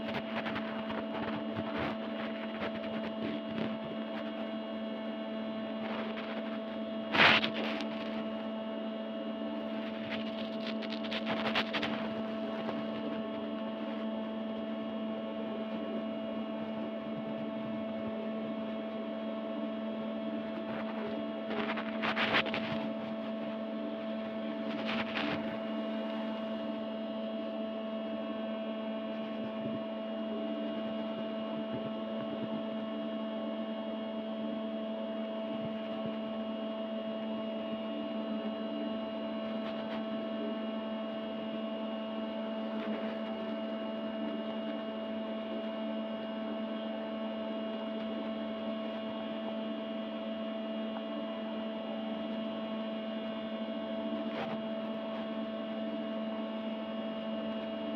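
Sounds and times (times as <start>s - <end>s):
steady hum of fixed tones: 0.0s - 57.9s
brief crackle: 5.8s - 8.2s.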